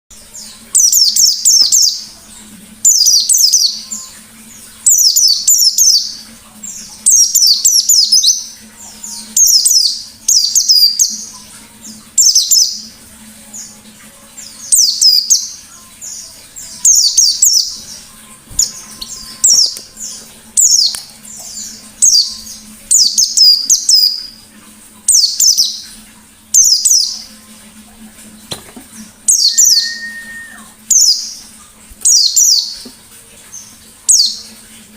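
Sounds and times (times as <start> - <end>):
bird twittering: 29.3 - 31.3.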